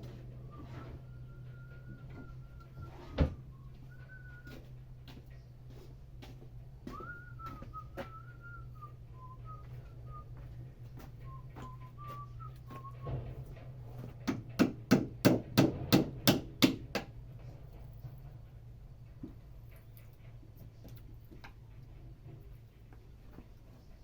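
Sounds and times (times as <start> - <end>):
low steady hum: 0.0 - 24.0
person whistling a slow tune: 0.4 - 4.8, 6.8 - 13.1
sharp knocks: 14.2 - 17.2.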